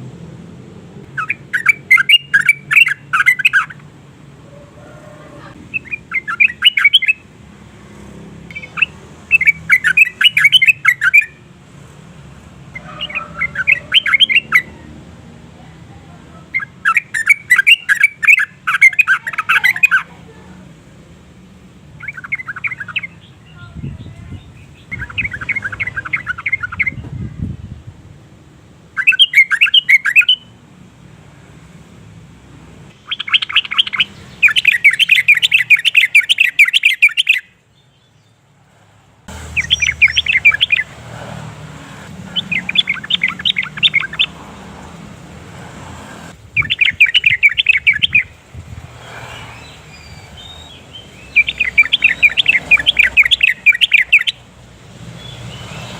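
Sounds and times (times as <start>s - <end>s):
bird chattering song: 1.0s - 3.9s, 5.6s - 7.3s, 8.5s - 11.4s, 12.8s - 14.9s, 16.4s - 20.2s, 22.0s - 27.3s, 29.0s - 30.5s, 32.9s - 38.4s, 39.4s - 41.0s, 41.9s - 44.4s, 46.5s - 48.4s, 49.2s - 54.5s.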